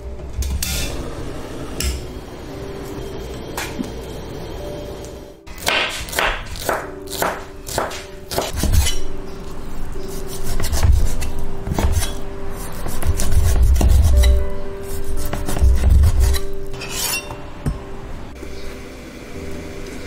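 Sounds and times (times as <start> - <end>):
cleaver chopping on wooden board: 5.6 - 8.9.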